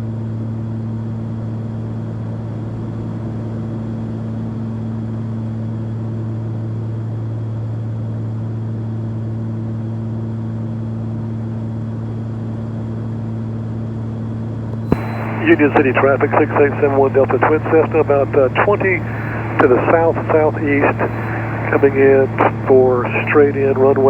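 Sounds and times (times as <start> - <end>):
aircraft engines droning in cockpit: 14.8 - 24.0.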